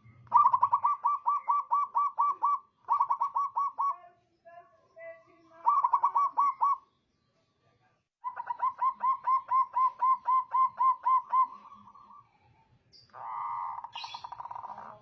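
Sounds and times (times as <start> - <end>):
dove cooing: 0.0 - 4.0, 5.6 - 6.8, 8.2 - 12.3, 13.1 - 15.0.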